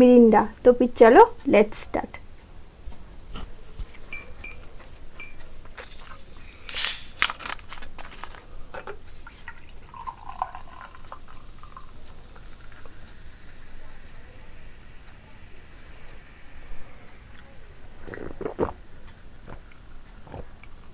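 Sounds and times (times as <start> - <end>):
wet eating sounds: 18.0 - 18.8, 19.4 - 20.9.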